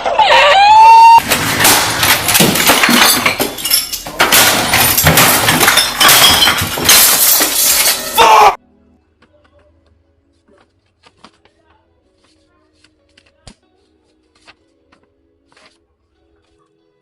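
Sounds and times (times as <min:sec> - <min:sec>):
glass cracking and crunching: 0:01.2 - 0:08.3.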